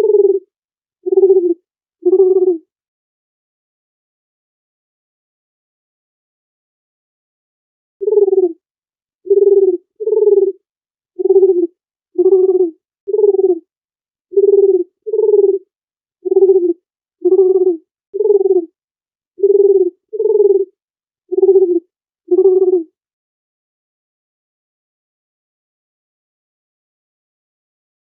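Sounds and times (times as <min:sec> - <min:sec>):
dove cooing: 0:00.0 - 0:02.6, 0:08.0 - 0:08.6, 0:09.3 - 0:10.6, 0:11.2 - 0:13.6, 0:14.4 - 0:18.8, 0:19.4 - 0:20.7, 0:21.3 - 0:22.9.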